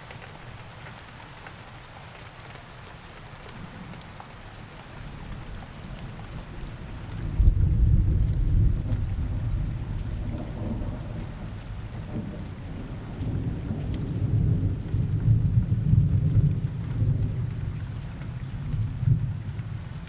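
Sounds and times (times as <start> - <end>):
steady rain: 0.0 - 20.0
rolling thunder: 6.8 - 17.8.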